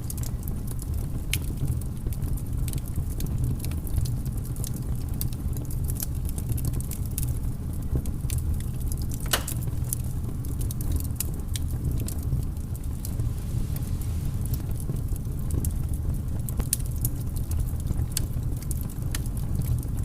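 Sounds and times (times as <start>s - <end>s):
wood fire crackling: 0.0s - 20.0s
low rumble: 11.6s - 16.5s.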